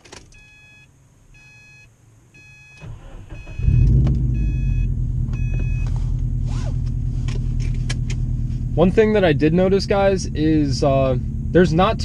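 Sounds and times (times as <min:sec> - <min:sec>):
dashboard warning chime: 0:00.4 - 0:05.9
car engine idling loudly: 0:04.9 - 0:12.0.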